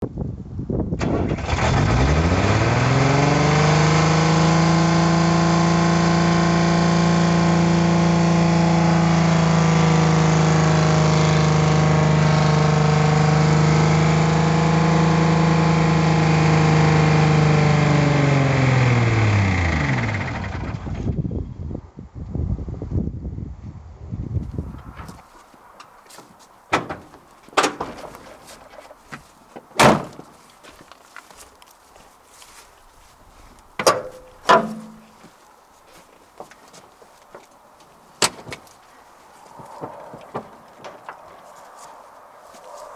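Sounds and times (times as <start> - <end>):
diesel truck engine racing: 1.0 - 20.8, 24.5 - 30.5, 32.5 - 35.4.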